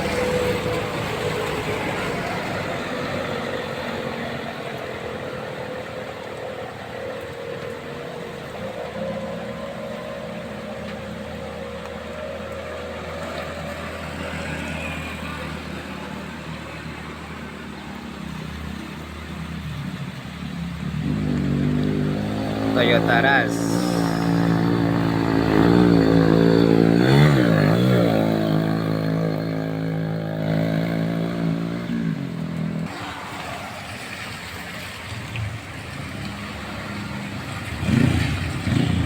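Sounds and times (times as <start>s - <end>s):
rain hissing on wet road: 0.0s - 39.0s
vehicle engine running: 16.4s - 39.0s.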